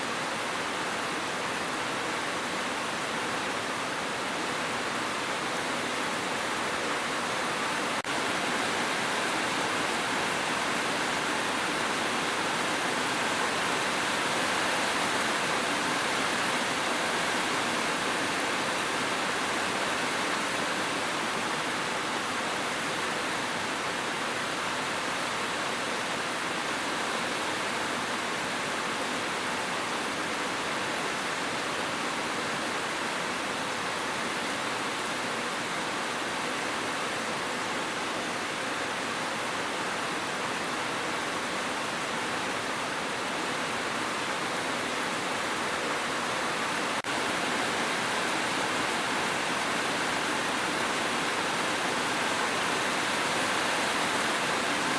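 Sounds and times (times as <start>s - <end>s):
heavy rain hissing: 0.0s - 54.9s.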